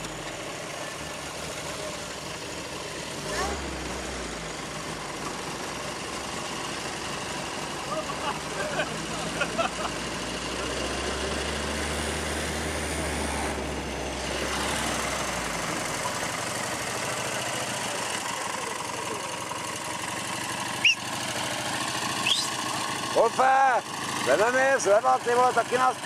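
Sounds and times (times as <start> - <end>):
vehicle engine and road noise: 0.0 - 26.0
short high squeak: 20.8 - 21.0, 22.2 - 22.6.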